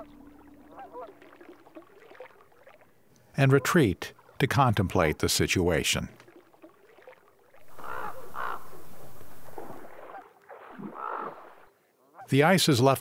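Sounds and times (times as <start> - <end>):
crow-like bird calls: 7.6 - 9.0, 10.9 - 11.6.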